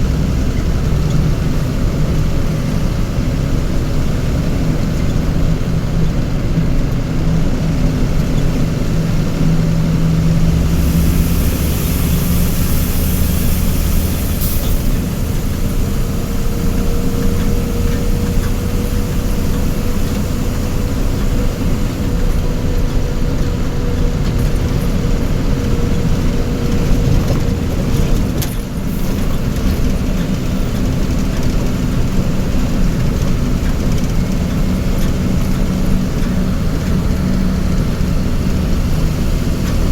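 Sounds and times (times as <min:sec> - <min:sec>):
vehicle engine running: 0:00.0 - 0:39.9
hiss: 0:10.3 - 0:22.6, 0:24.9 - 0:32.6.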